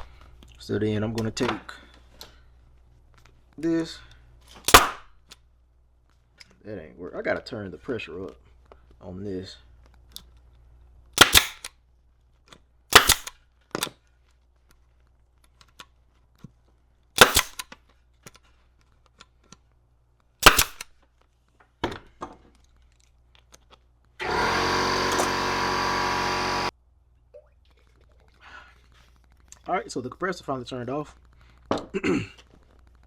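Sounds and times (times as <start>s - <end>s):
pneumatic staple gun firing: 4.6s - 5.1s, 11.2s - 11.7s, 12.9s - 13.4s, 17.2s - 17.7s, 20.4s - 20.9s, 24.2s - 26.7s
air compressor humming: 24.2s - 26.7s.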